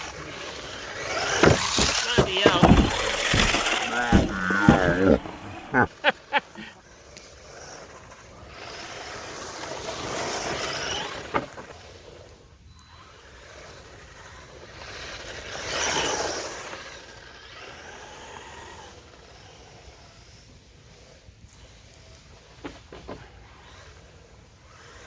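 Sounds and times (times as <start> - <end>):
rc car motor and tyres on dirt: 0.0 - 25.0.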